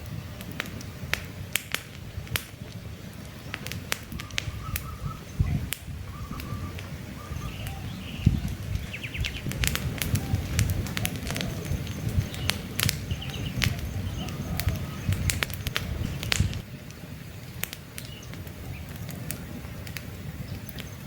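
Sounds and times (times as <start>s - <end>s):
campfire crackling and popping: 0.0s - 21.0s
faint bird chirps: 4.1s - 9.5s, 10.1s - 15.3s.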